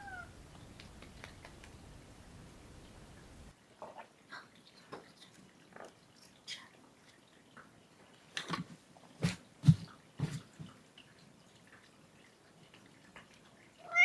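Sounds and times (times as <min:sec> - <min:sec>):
light clicks and taps: 0:00.5 - 0:01.9.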